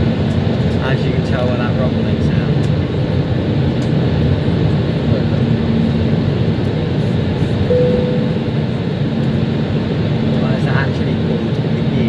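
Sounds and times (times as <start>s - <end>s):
airplane cabin engine drone: 0.0s - 12.0s
faint hum: 7.4s - 9.3s.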